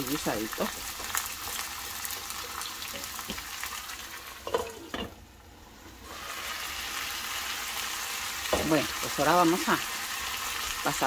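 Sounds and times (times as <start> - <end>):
chiles sizzling in oil: 0.0 - 11.0.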